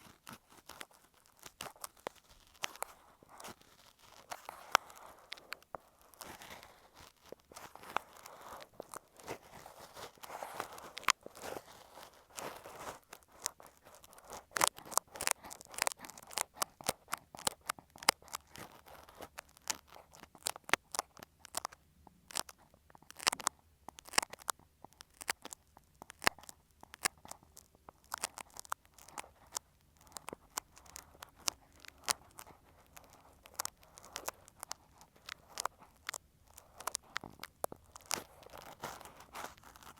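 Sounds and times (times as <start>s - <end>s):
ear pick scraping microphone: 1.5s - 15.9s.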